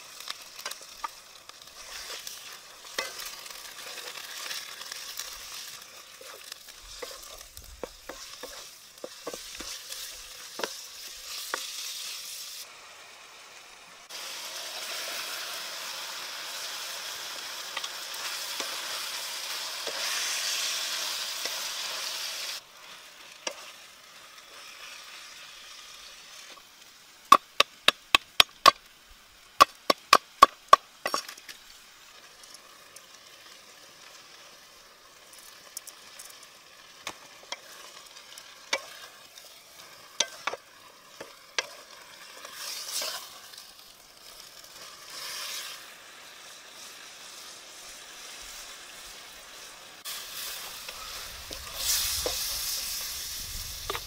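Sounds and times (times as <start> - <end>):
vegetables sizzling in a wok: 0.0 - 54.0.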